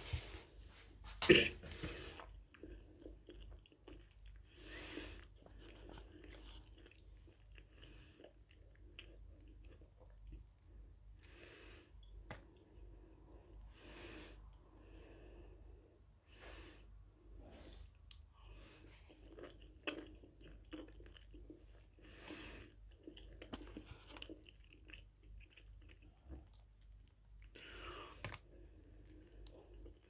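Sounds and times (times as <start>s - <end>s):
wet chewing sounds: 2.0s - 13.3s, 17.9s - 30.0s.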